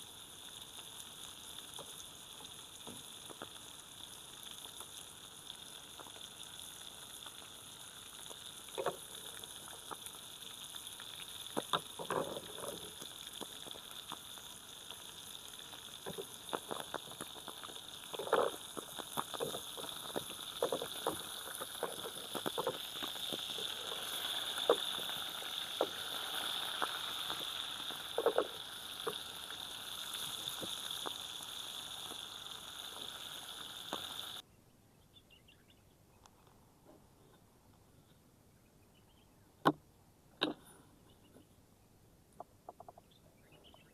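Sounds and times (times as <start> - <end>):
food sizzling in a pan: 0.0 - 34.4.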